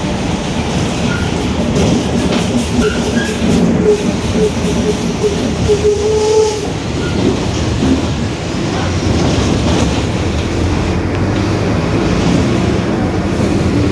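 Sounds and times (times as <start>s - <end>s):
bus differential whining: 0.0s - 13.9s
road noise rumble: 0.0s - 13.9s.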